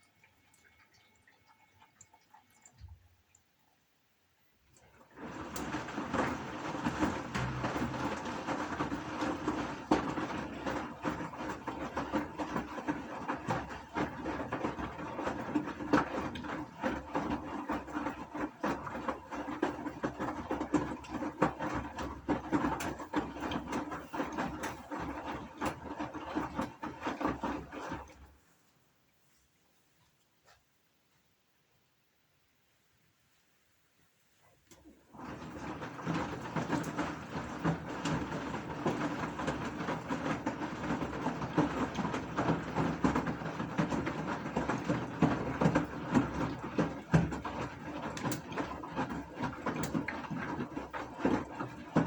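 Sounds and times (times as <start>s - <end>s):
washing machine motor hum: 4.7s - 28.6s, 34.7s - 52.0s.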